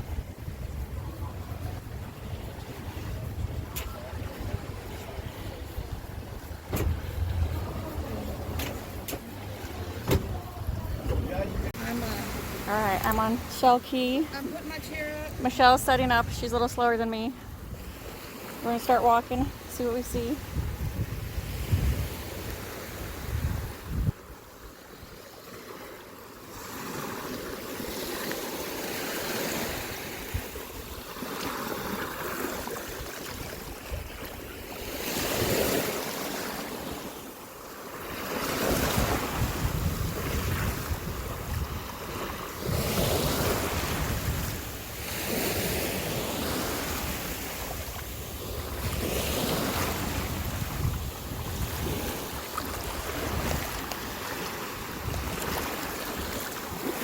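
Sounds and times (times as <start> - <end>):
wind buffeting microphone: 0.0 - 25.2, 29.1 - 37.1, 38.1 - 57.0
small waves breaking on beach: 0.0 - 57.0.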